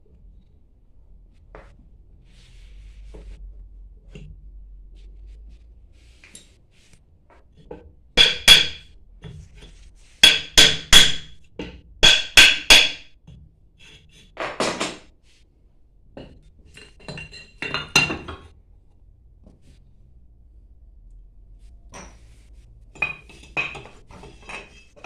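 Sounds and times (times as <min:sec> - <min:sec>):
hammer striking metal: 0:08.2 - 0:08.9, 0:10.2 - 0:11.4, 0:12.0 - 0:13.1.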